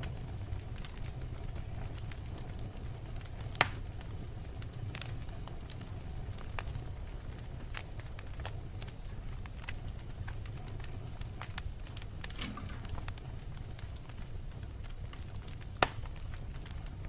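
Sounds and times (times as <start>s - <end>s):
fire crackling: 0.0s - 17.0s
low rumble of flames: 0.0s - 17.0s
sharp pop of burning log: 12.2s - 13.2s, 15.8s - 16.1s.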